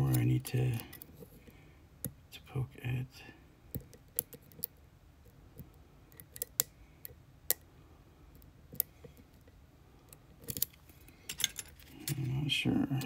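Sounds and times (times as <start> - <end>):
lock pick clicking on pins: 5.6 - 6.7, 10.1 - 12.3.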